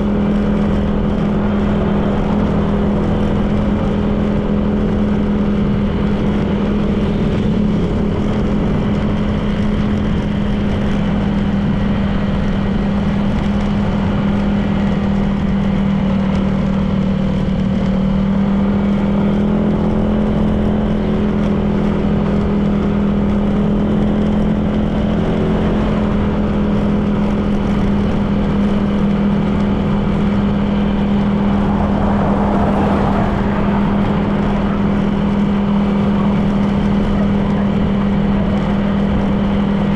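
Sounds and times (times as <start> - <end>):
road and wind noise: 0.0 - 39.9
rush of noise: 26.6 - 39.9.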